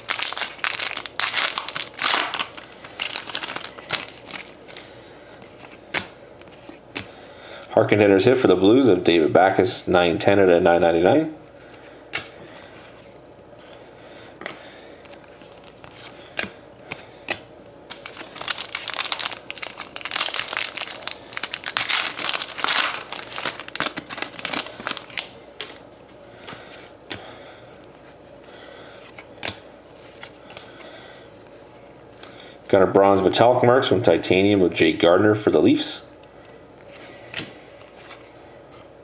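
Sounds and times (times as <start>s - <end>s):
card pack wrapper crinkling: 0.0s - 4.8s, 17.9s - 25.8s.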